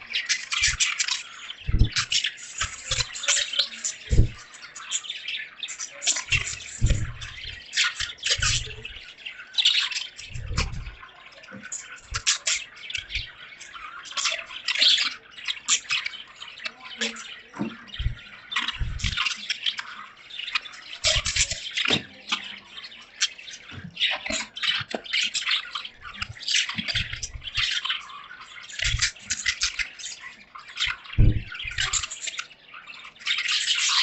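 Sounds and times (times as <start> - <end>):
budgerigars chirping: 0.0 - 34.0
dull low thuds: 1.7 - 2.0, 4.1 - 4.4, 6.3 - 7.6, 8.4 - 9.0, 10.3 - 11.0, 18.0 - 18.2, 18.8 - 19.2, 31.1 - 32.0.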